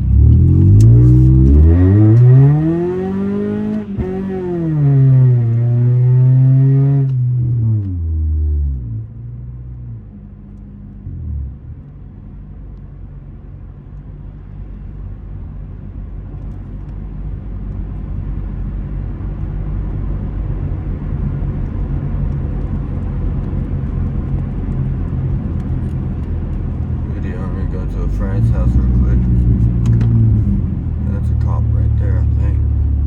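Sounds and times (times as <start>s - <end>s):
car engine revving: 0.0s - 9.4s, 20.6s - 33.0s
low exhaust drone: 0.0s - 33.0s.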